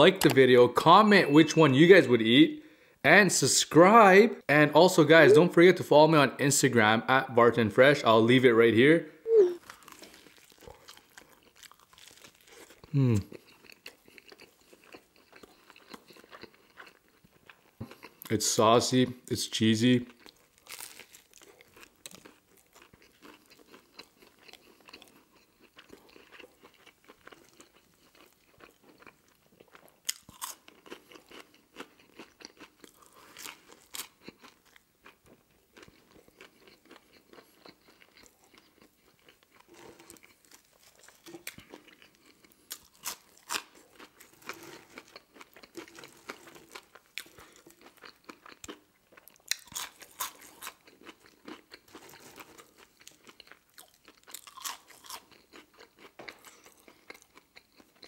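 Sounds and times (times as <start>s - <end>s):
person chewing crunchy food: 9.3s - 18.3s, 20.1s - 58.0s
french fry bitten: 20.1s - 58.0s.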